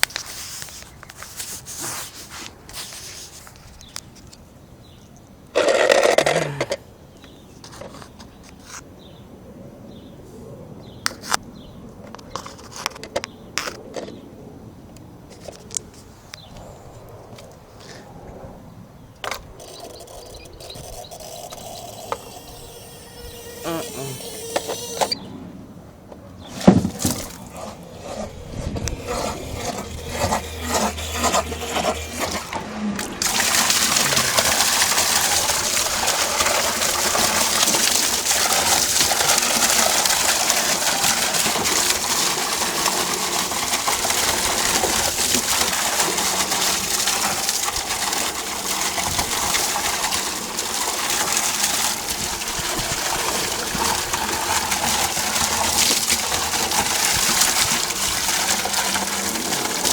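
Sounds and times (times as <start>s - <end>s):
gushing water: 19.4s - 25.3s, 26.4s - 59.9s.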